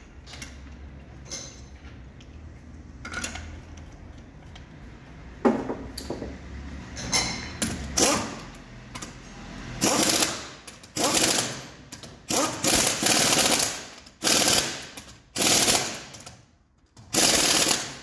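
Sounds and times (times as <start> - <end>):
metal tools clanking: 0.2 - 2.4.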